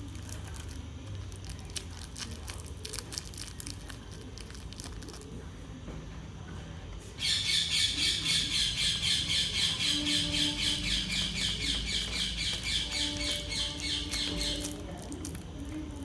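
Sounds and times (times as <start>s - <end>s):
high-pitched bird chirps: 7.2s - 14.8s.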